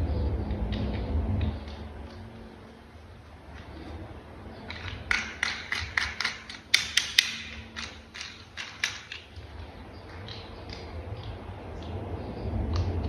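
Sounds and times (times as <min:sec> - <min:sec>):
plastic parts clicking: 0:04.7 - 0:09.4.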